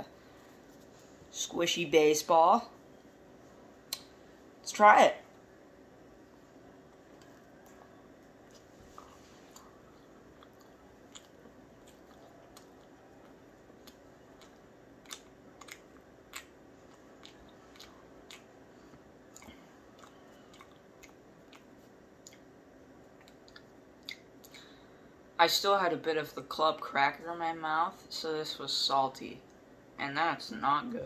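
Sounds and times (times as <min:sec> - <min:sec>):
mouth clicks chewing marshmallow: 0:07.1 - 0:18.6, 0:19.3 - 0:24.7.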